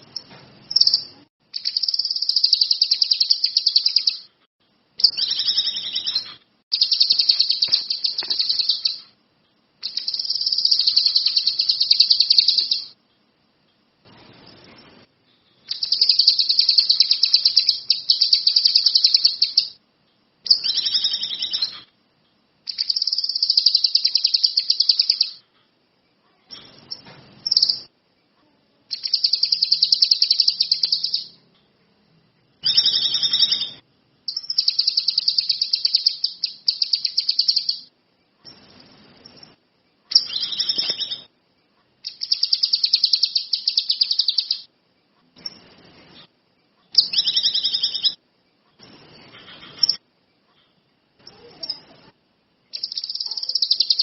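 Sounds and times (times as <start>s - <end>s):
songbird singing trilled phrases: 0.0s - 4.3s, 5.0s - 9.2s, 9.8s - 13.0s, 15.6s - 19.8s, 20.4s - 21.9s, 22.7s - 25.4s, 26.5s - 27.9s, 28.9s - 31.4s, 32.6s - 37.9s, 38.5s - 41.4s, 42.0s - 44.7s, 46.9s - 48.2s, 52.7s - 54.0s.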